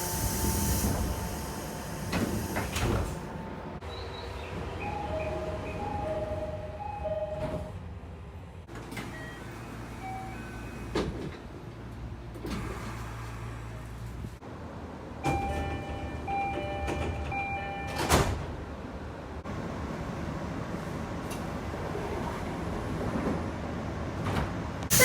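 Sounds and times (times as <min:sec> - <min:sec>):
sliding doors shutting thud: 0:00.0 - 0:03.6
train door chime beeping: 0:00.0 - 0:03.8, 0:04.7 - 0:07.8, 0:09.1 - 0:10.9, 0:15.3 - 0:18.2.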